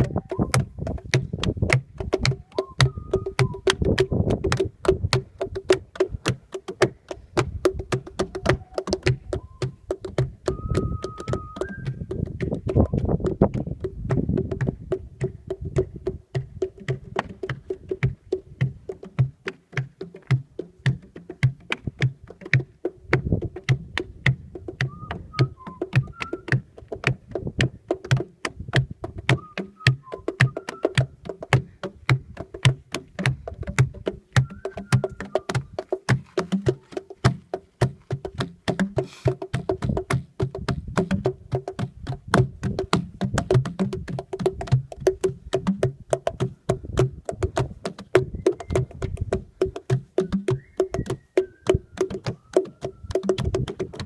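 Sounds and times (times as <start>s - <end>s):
wind buffeting microphone: 0.0s - 6.5s, 7.2s - 18.6s, 23.0s - 27.9s, 39.7s - 49.7s
hand drumming on boulders: 0.0s - 54.0s.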